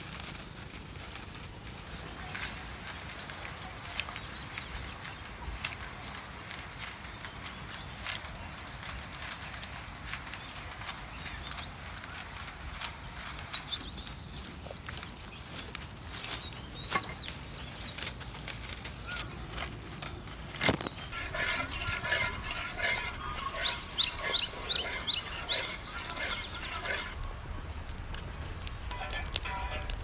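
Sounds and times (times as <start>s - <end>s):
bird chirping: 20.8s - 28.1s.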